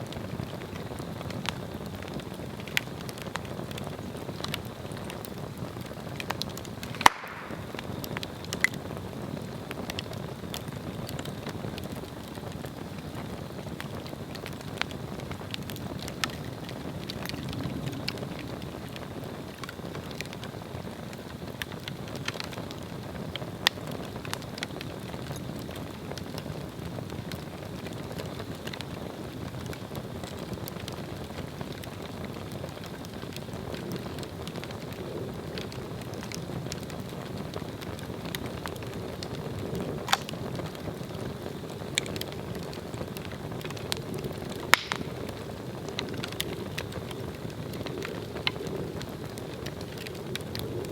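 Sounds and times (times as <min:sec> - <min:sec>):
log fire crackling: 0:00.0 - 0:50.9
sharp pops: 0:06.9 - 0:07.8, 0:40.1 - 0:40.4, 0:44.7 - 0:45.2.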